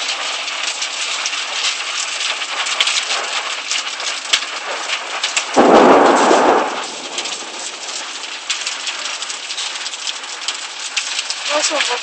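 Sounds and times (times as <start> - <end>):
heavy rain and hail: 0.0 - 12.0
loud crack: 5.6 - 9.2.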